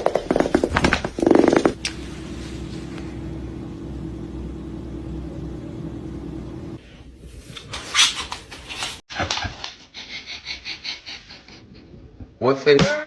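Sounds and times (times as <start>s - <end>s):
steady low hum: 0.3s - 7.7s.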